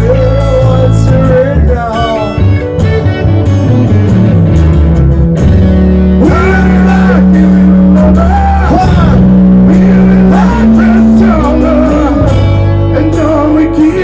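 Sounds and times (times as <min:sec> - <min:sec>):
live band with electric guitar: 0:00.0 - 0:14.0
person singing: 0:06.2 - 0:14.0.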